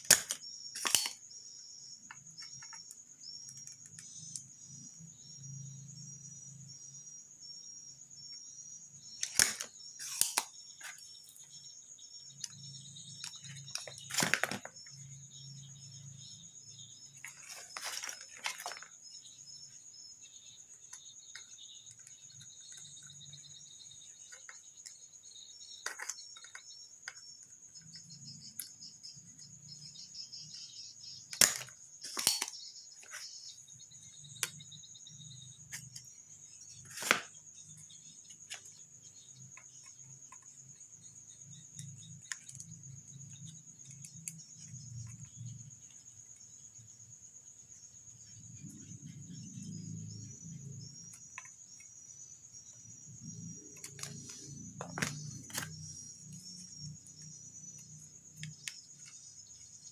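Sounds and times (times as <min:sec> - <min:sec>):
hand tools clicking on circuit board: 0:00.0 - 0:01.2, 0:09.2 - 0:11.2, 0:31.3 - 0:33.2
crickets chirring: 0:00.0 - 0:59.9.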